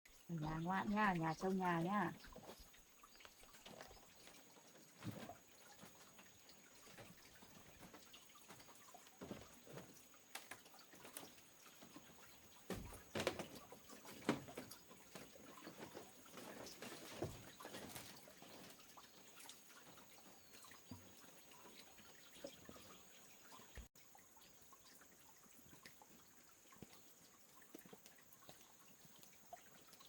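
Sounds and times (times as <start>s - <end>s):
faint water sounds: 0.1s - 30.0s
small knocks: 12.6s - 18.7s.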